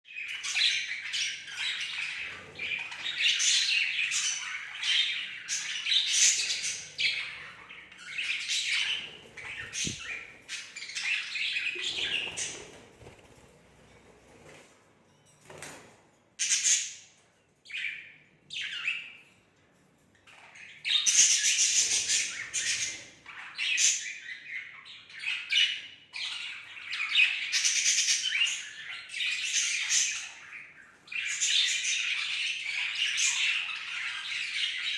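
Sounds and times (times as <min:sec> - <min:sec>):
budgerigars chattering and chirping: 0:00.2 - 0:13.2.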